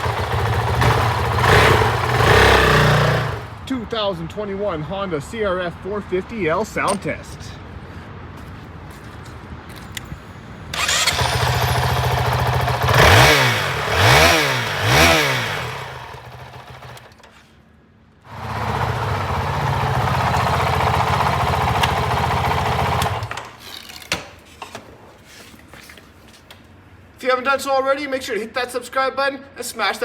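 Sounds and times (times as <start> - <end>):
motorcycle engine idling and revving: 0.0 - 3.6, 10.7 - 17.2, 18.3 - 23.6.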